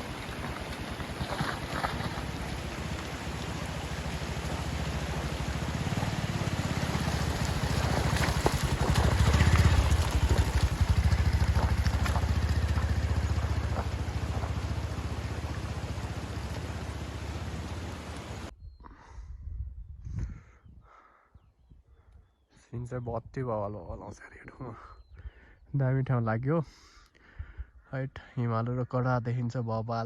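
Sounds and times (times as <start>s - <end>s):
motorcycle engine revving: 0.0s - 18.5s.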